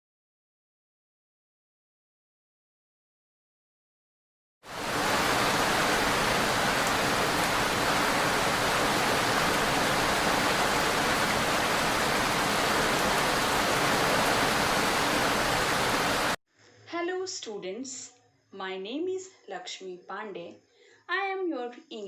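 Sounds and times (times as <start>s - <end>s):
heavy rain: 4.6s - 16.4s.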